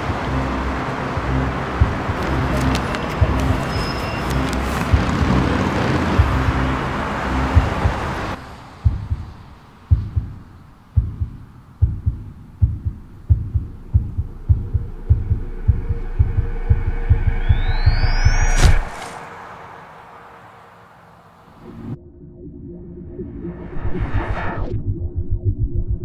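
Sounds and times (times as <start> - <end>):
dense noisy wash: 0.0 - 22.0
heartbeat thumps: 1.2 - 19.1, 24.8 - 26.0
faint steady hum: 6.2 - 18.5.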